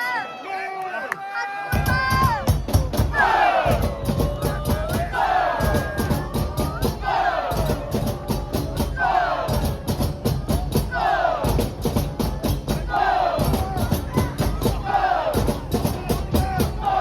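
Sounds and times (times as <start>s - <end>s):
crowd chanting in unison: 1.4s - 17.0s
steady drumbeat: 1.7s - 17.0s.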